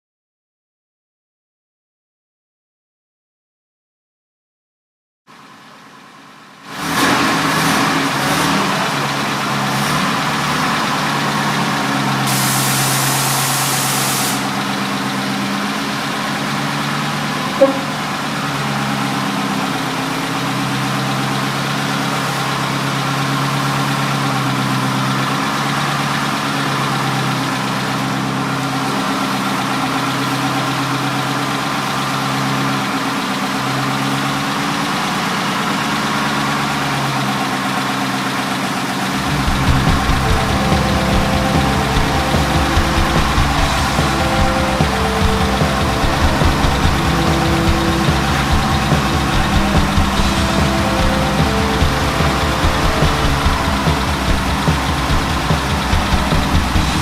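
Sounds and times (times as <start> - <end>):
car engine idling: 5.3 - 57.0
hiss: 12.1 - 14.7.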